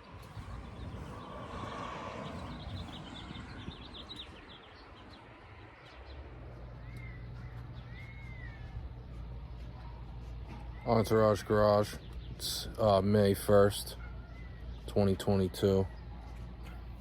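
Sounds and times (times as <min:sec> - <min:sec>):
steady low rumble: 0:00.0 - 0:10.2
birds chirping: 0:00.0 - 0:17.0.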